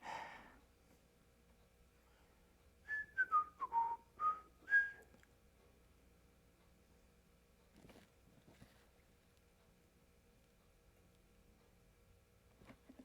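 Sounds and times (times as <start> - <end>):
person whistling a short tune: 2.9 - 5.1.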